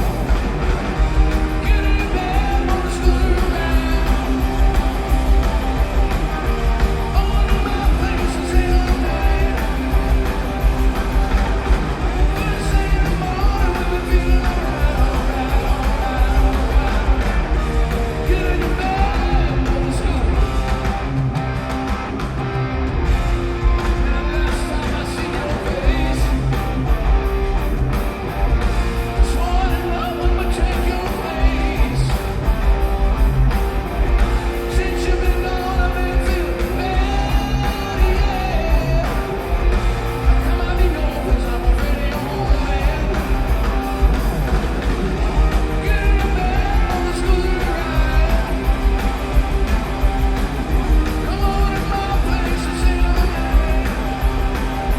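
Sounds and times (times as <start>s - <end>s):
rock band with electric guitar: 0.0s - 54.9s
man singing: 1.2s - 5.0s, 6.9s - 10.4s, 12.0s - 20.7s, 23.9s - 26.7s, 29.1s - 32.6s, 34.5s - 43.9s, 45.3s - 49.2s, 51.0s - 54.6s.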